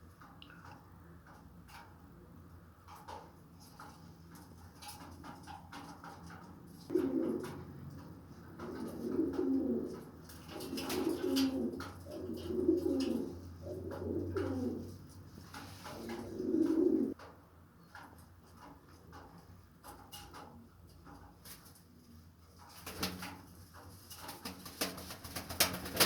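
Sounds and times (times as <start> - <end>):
pigeon cooing: 6.9 - 7.7, 8.6 - 15.0, 15.9 - 17.2.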